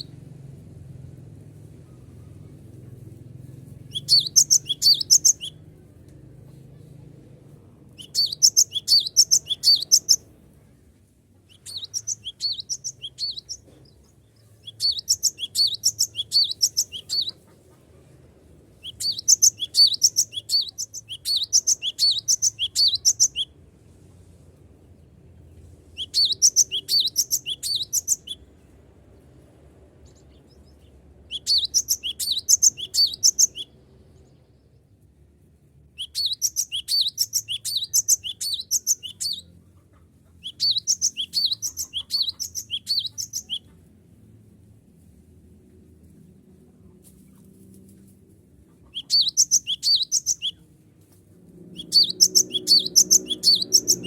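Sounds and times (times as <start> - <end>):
bird singing rapid high notes: 3.9 - 5.6, 8.0 - 10.2, 11.5 - 13.6, 14.6 - 17.4, 18.8 - 23.4, 26.0 - 28.4, 31.3 - 33.6, 36.0 - 39.4, 40.4 - 43.6, 49.0 - 50.6, 51.8 - 54.0.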